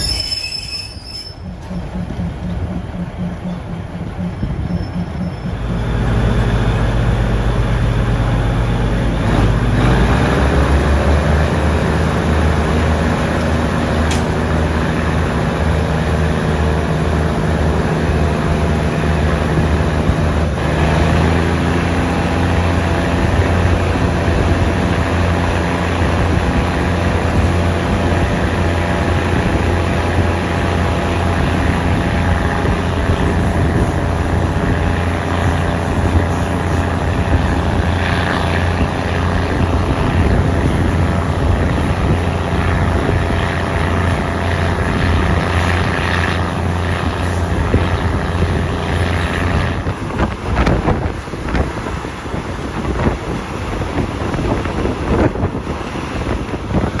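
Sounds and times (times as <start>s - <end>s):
wheels on rails: 0.0s - 7.8s
diesel engine drone: 0.9s - 57.0s
wind noise: 19.4s - 57.0s.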